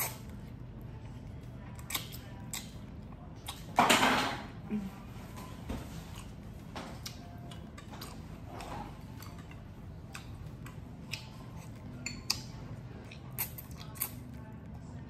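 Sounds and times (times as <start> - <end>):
chewing: 0.0 - 3.8, 5.1 - 15.0
low steady hum: 0.0 - 15.0
wet mouth clicks and smacks: 11.1 - 11.4.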